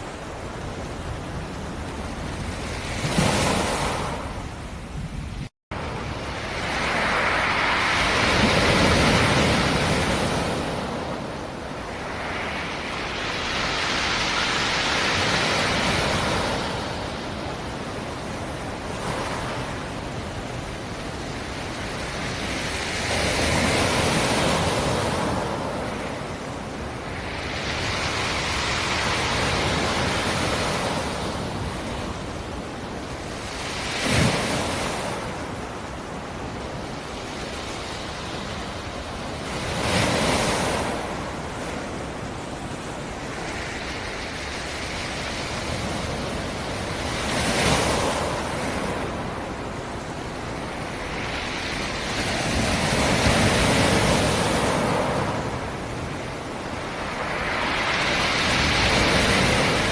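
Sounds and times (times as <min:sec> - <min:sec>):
waves washing on shore: 0:00.0 - 0:59.9
sharp wave splash: 0:11.9 - 0:17.1.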